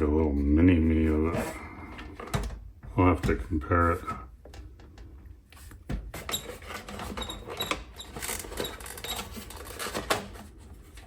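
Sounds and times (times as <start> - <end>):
plastic parts clicking and scraping: 3.9 - 11.0.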